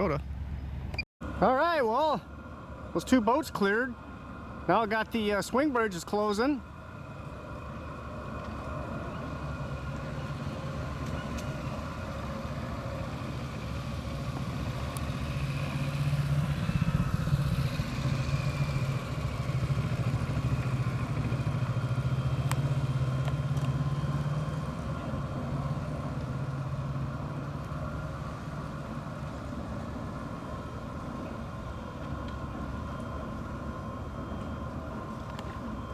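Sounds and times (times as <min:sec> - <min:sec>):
low mechanical hum: 0:00.2 - 0:35.9
higher mechanical whine: 0:00.3 - 0:35.9.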